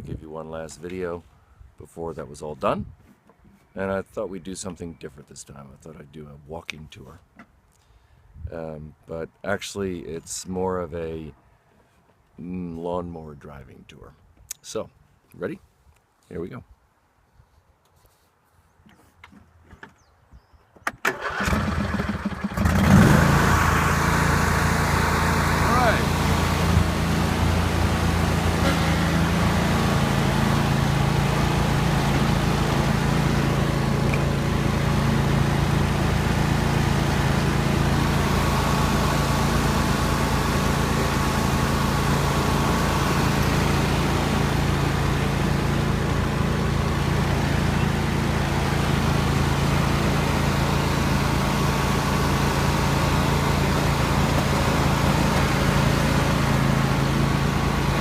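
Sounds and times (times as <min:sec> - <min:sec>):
riding lawn mower engine: 0:21.1 - 0:58.0.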